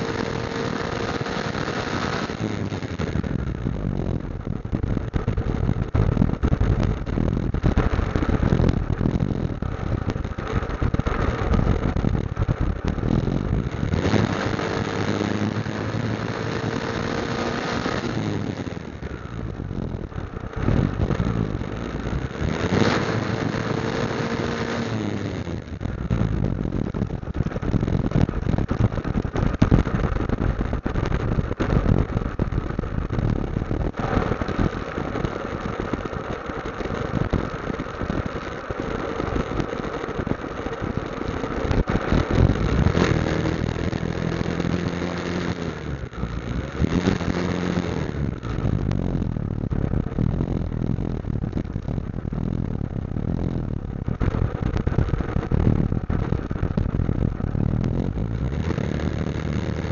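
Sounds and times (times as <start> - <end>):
wind buffeting microphone: 0.0 - 25.0, 25.6 - 59.9
motorcycle engine running: 0.0 - 59.9.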